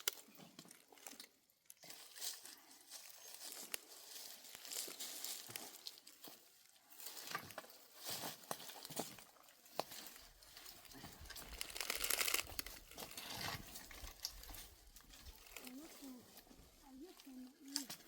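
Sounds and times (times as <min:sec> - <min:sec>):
dry material rustling and crunching: 0:00.0 - 0:18.0.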